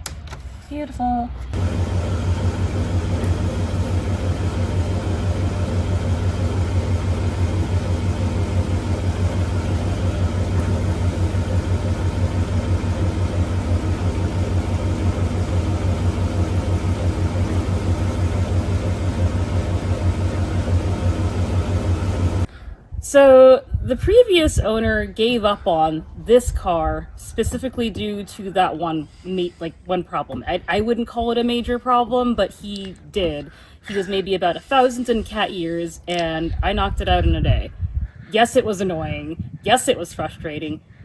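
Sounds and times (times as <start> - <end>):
pickup truck engine idling: 1.6 - 22.5.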